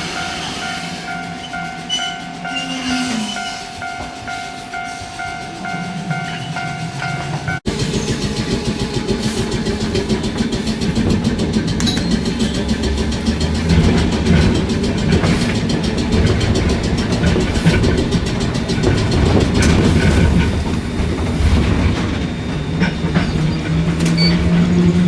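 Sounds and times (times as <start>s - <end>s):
tram rumbling on rails: 0.0s - 25.0s
light rail clicks: 9.3s - 20.8s.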